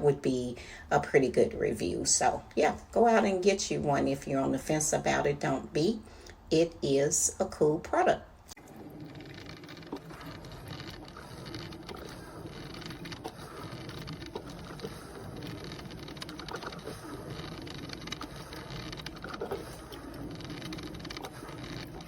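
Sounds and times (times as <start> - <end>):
small pops and clicks: 8.5 - 22.0
coffee maker gurgling hiss: 8.6 - 22.0.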